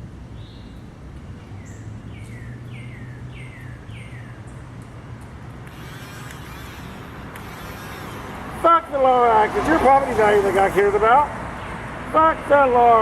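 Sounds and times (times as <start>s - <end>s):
broad rushing noise: 5.4s - 13.0s.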